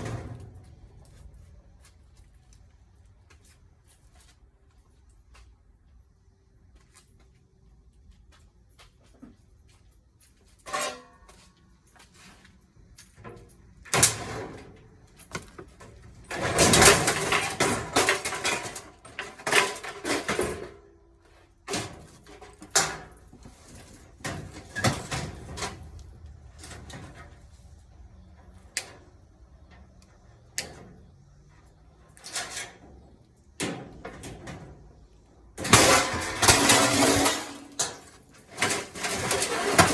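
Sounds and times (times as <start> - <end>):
tools and metal parts clanking: 10.6 - 12.1, 12.9 - 21.0, 21.6 - 27.4, 32.1 - 39.9
clattering rattle: 35.6 - 39.9.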